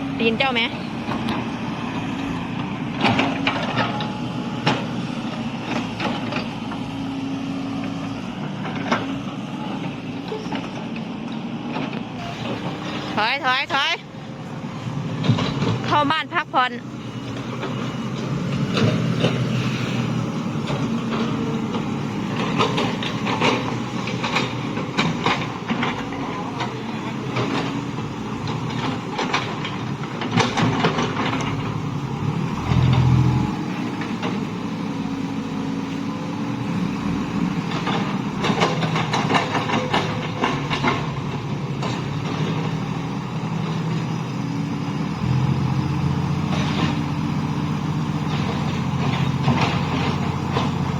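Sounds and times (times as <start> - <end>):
heavy diesel engine running: 0.0 - 50.9
clanking and rattling: 17.2 - 34.9, 37.5 - 50.9.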